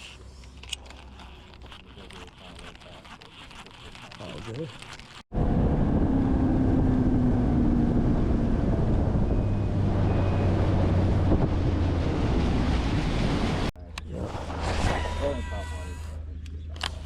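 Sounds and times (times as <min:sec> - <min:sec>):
wind over microphone: 0:05.3 - 0:15.0.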